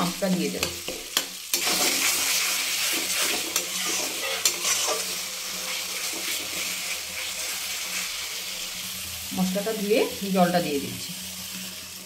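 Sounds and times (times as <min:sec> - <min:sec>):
onions sizzling in hot oil: 0:00.0 - 0:12.0
metal spatula scraping a pan: 0:00.6 - 0:08.8.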